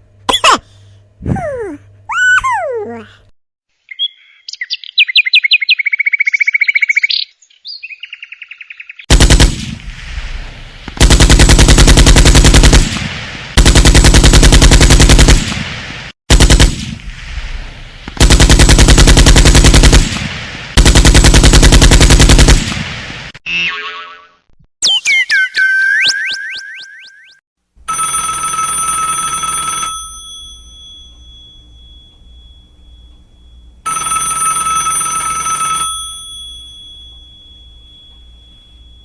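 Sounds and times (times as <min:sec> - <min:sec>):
chirpy electronic trill ringtone: 0:23.5 - 0:28.2
rapid rattling buzz ringtone: 0:27.9 - 0:39.0.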